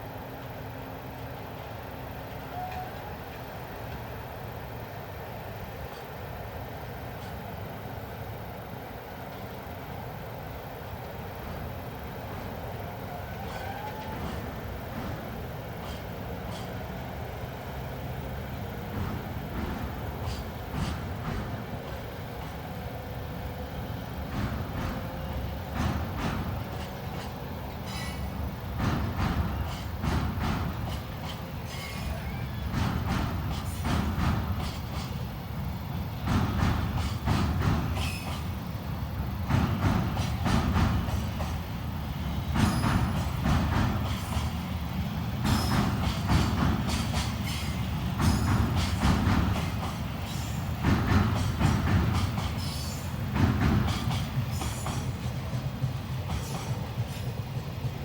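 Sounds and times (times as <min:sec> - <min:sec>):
low rumble of train: 0:00.0 - 0:58.0
train wheels clacking over rail joints: 0:10.6 - 0:58.0
wheel squeals: 0:13.0 - 0:14.6, 0:26.8 - 0:28.5, 0:30.9 - 0:33.9.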